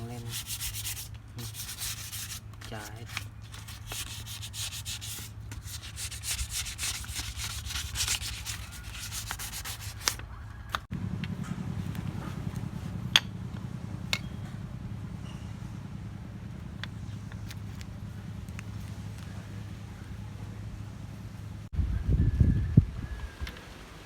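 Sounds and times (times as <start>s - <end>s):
scrubbing on metal piston: 0.0s - 10.2s.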